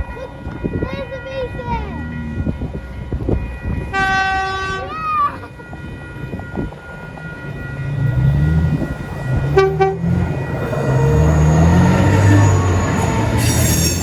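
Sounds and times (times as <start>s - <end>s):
electric train passing: 0.0s - 14.0s
train horn toot: 3.7s - 5.0s, 9.4s - 10.5s.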